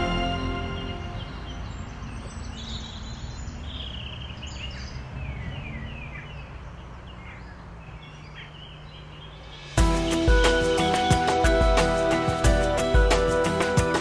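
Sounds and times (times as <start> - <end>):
high-pitched bird chirps: 0.0 - 6.5.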